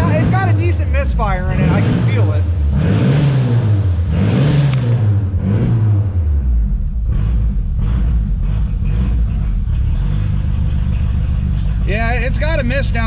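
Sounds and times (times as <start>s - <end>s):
engine running rough: 0.0s - 13.0s.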